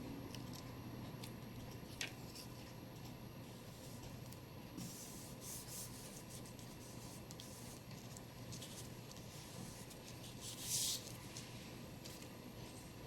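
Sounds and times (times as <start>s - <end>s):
paper rubbing and rustling: 4.8s - 12.8s.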